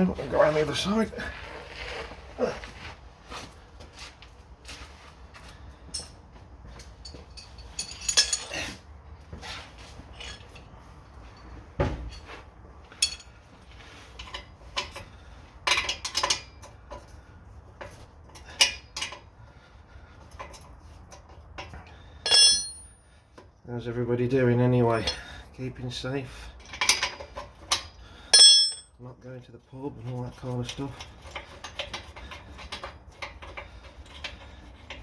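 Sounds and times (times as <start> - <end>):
metallic clinks of hand tools: 22.3 - 23.0, 28.4 - 28.9.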